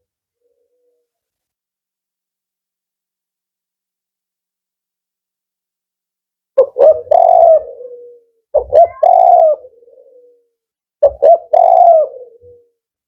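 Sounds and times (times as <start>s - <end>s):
dove cooing: 6.6s - 12.8s.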